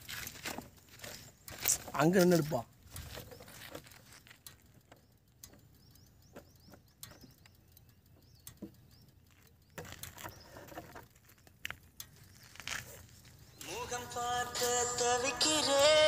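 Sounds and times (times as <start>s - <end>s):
rustling: 0.0s - 4.8s, 9.2s - 13.7s
soft clicks and knocks: 2.9s - 12.2s
faint bird chirps: 3.0s - 13.9s.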